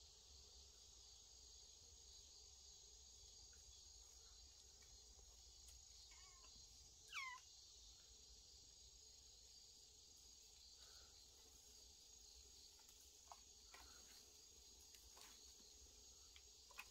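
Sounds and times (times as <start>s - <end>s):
high-pitched insect chorus: 0.0s - 16.9s
kitten mewing: 7.1s - 7.4s.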